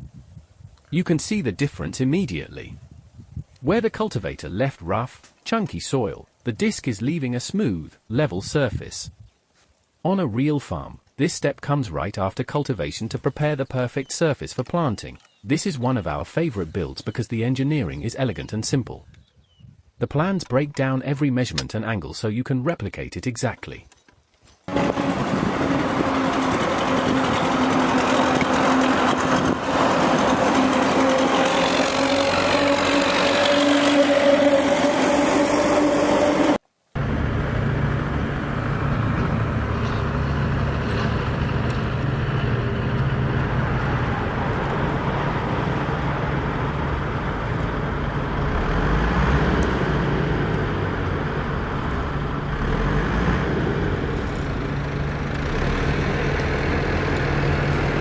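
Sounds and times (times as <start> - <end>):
mini tractor motor whining: 24.7 - 58.0.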